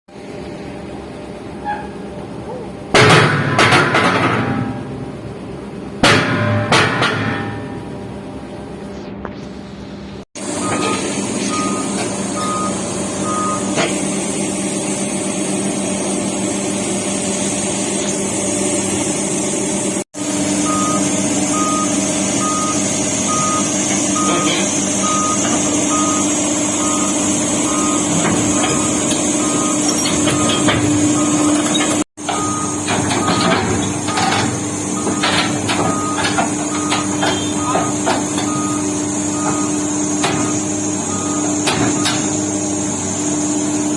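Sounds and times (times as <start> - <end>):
diesel excavator engine under load: 7.7 - 43.9
backup alarm beeping: 10.6 - 13.8, 20.5 - 42.3.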